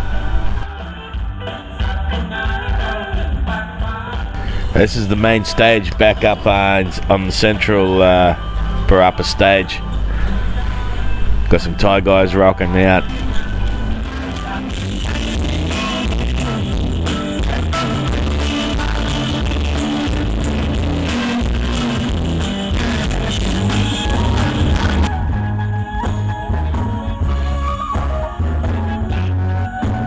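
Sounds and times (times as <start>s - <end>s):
rock band playing live: 12.8s - 30.0s.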